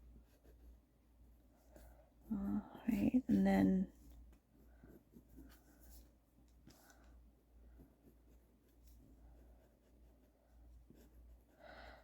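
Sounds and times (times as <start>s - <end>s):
pencil scratching on paper: 0.1s - 0.8s, 3.0s - 7.1s, 7.7s - 11.6s.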